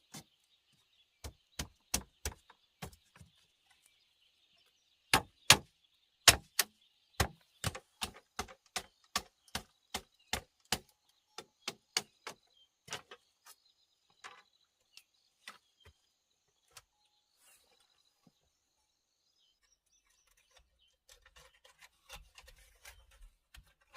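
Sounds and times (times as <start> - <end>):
hand tool chopping wood: 1.2 - 3.0, 5.1 - 13.0.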